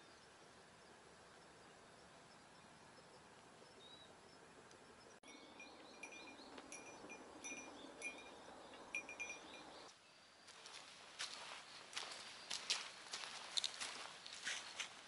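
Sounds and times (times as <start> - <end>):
soft outdoor hiss: 0.0 - 15.0
bird chirping: 2.3 - 10.2.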